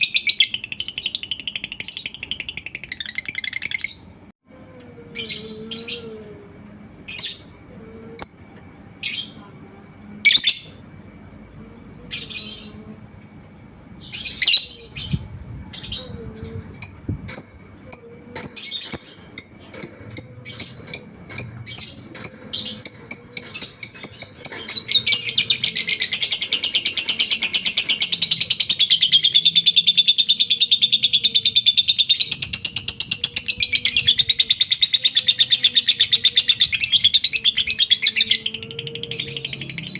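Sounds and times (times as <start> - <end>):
lovebird chirping and trilling: 0.0 - 4.1, 12.2 - 16.2, 16.8 - 39.9.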